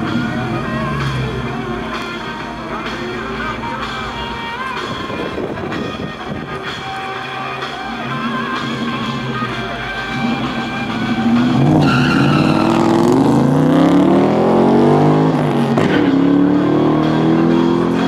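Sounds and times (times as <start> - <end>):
car engine accelerating hard: 0.0 - 3.6, 7.8 - 18.0.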